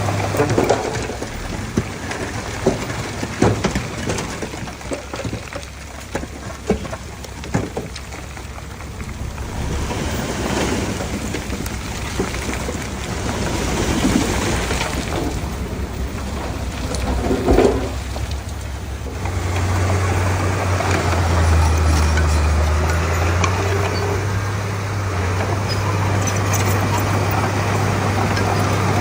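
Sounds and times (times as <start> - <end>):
metal clanks and knocks: 0.0 - 19.7
bulldozer engine hum: 0.0 - 29.0
rushing gritty noise: 0.0 - 29.0.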